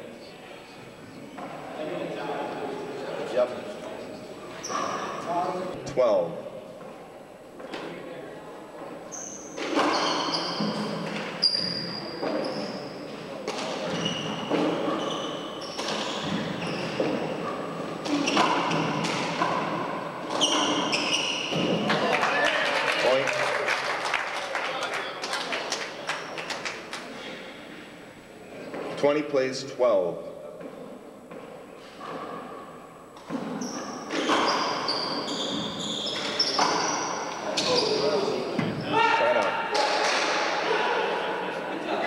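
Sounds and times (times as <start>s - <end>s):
short high squeaks: 9.1s - 10.8s, 11.4s - 13.0s, 20.3s - 21.6s, 33.6s - 39.1s
handball smacking walls: 18.0s - 22.1s.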